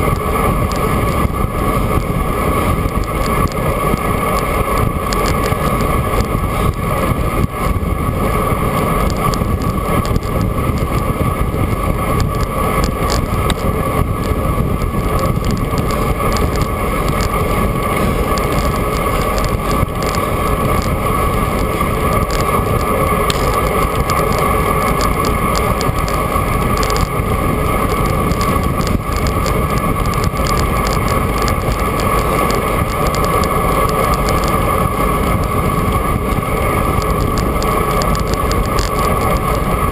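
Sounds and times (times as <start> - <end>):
bicycle tyres rumbling on road: 0.0 - 39.9
wind buffeting microphone: 0.0 - 39.9.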